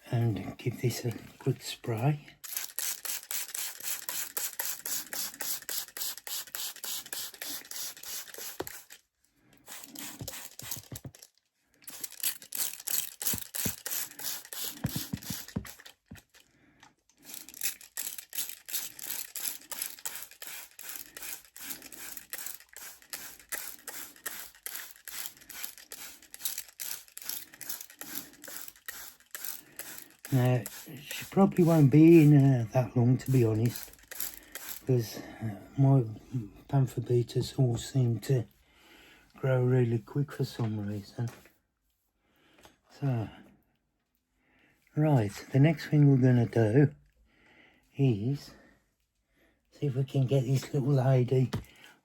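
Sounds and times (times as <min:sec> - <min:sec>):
spray bottle misting: 0:02.4 - 0:09.0, 0:09.6 - 0:11.2, 0:11.8 - 0:16.0, 0:17.2 - 0:34.9.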